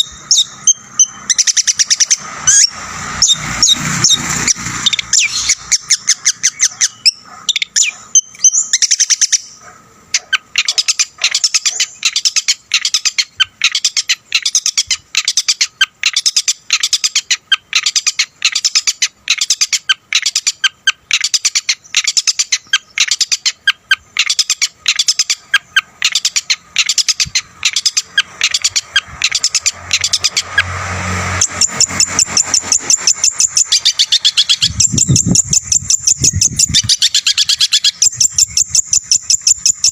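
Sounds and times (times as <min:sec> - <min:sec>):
shrike singing sharp chirps: 0:00.0 - 0:09.6, 0:10.2 - 0:39.9.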